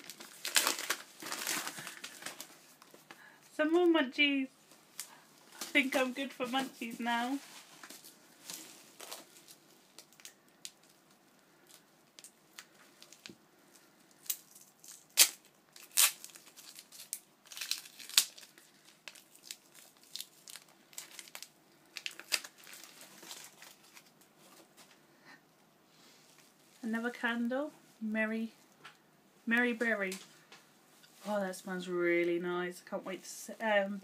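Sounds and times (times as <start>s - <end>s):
packaging crinkling: 0.0s - 3.2s, 4.9s - 24.8s.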